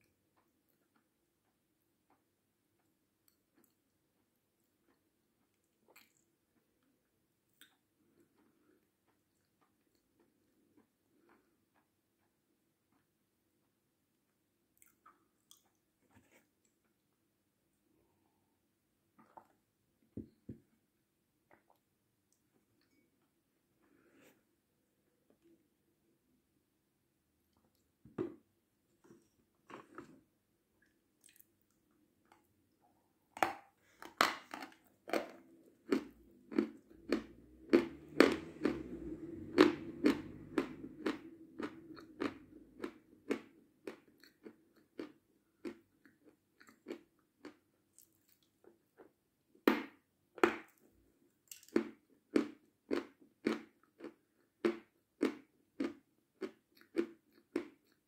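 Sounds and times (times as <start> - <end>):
person chewing crunchy food: 29.1 - 32.4, 33.8 - 49.2, 51.5 - 58.0.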